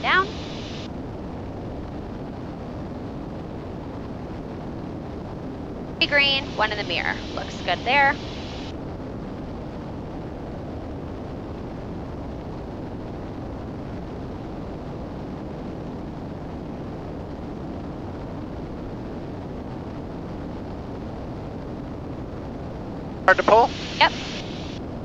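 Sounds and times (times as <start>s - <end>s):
airflow: 0.0s - 0.9s, 6.0s - 8.7s, 23.3s - 24.8s
airplane engines droning: 0.0s - 1.3s, 6.0s - 8.8s, 22.8s - 25.0s.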